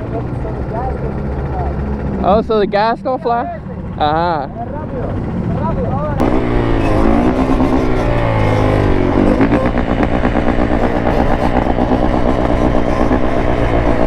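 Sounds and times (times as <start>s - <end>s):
small engine revving: 6.2s - 14.0s.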